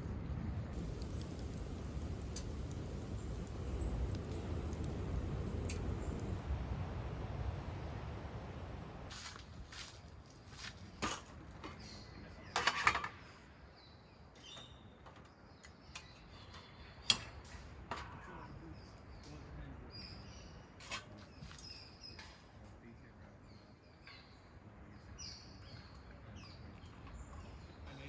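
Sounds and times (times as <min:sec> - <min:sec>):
faint bird chirps: 0:13.6 - 0:17.1.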